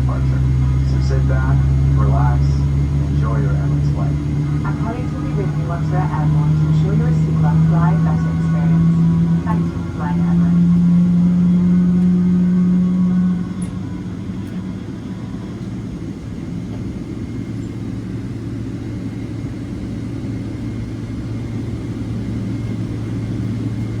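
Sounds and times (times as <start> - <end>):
low rumble: 0.0 - 20.2
loud steady cabin hum: 0.0 - 24.0
lower steady hum: 0.0 - 24.0.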